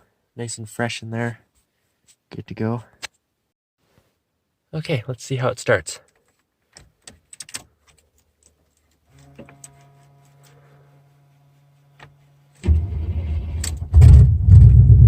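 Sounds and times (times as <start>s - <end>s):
engine cranking and idling: 12.6s - 15.0s.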